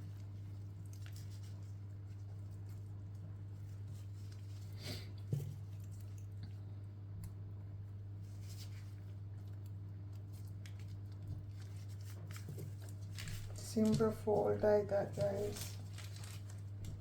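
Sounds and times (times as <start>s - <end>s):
hands squishing raw chicken: 0.0s - 7.4s
steady low hum: 0.0s - 17.0s.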